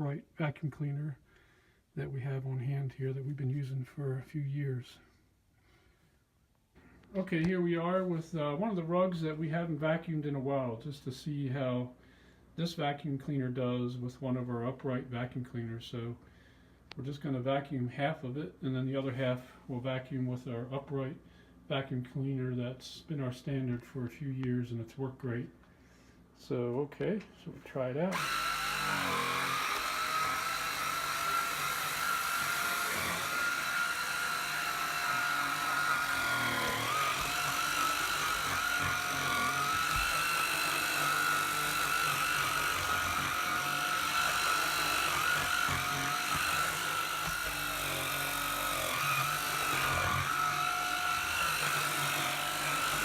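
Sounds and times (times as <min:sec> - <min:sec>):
vacuum cleaner motor whine: 0:28.1 - 0:53.0.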